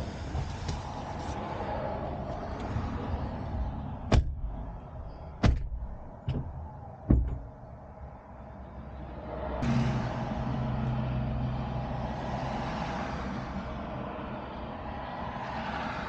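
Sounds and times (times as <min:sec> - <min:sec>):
vehicle doors shutting: 0:02.3 - 0:07.8.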